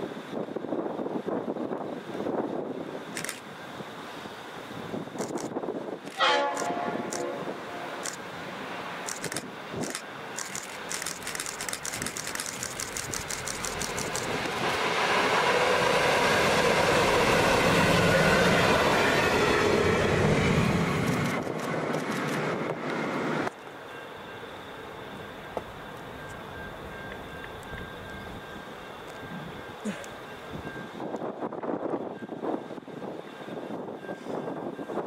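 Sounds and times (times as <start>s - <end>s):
train engines and wheels rumbling: 0.0s - 35.0s
quick clicks: 5.2s - 7.3s, 9.0s - 14.8s
locomotive horn blast: 6.1s - 8.0s.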